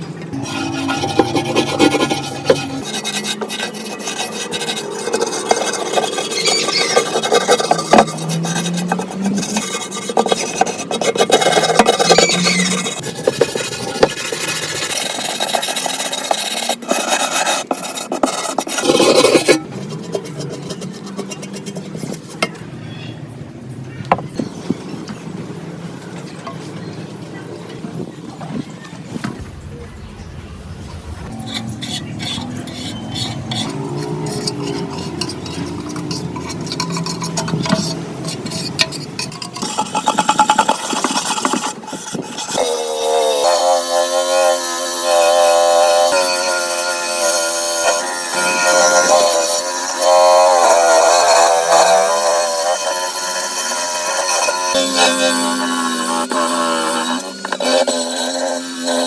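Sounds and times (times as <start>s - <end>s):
abrasive tool rasping: 0.3s - 22.6s, 31.2s - 59.0s
metal parts scraping and clinking: 31.4s - 41.7s.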